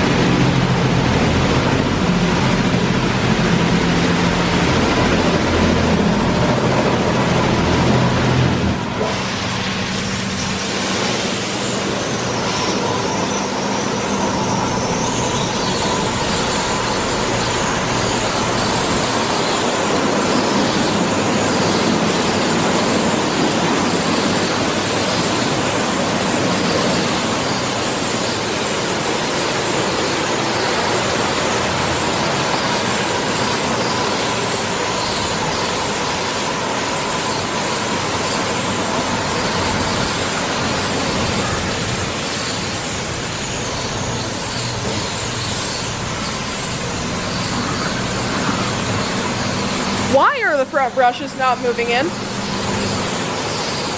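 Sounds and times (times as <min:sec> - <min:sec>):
car wash spraying water: 0:00.0 - 0:53.9
faint steady whine: 0:00.0 - 0:53.9.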